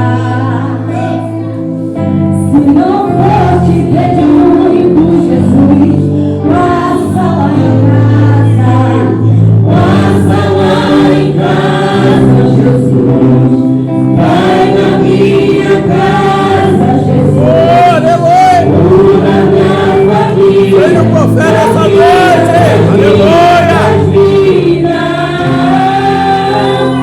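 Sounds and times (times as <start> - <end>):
group singing gospel song: 0.0 - 27.0.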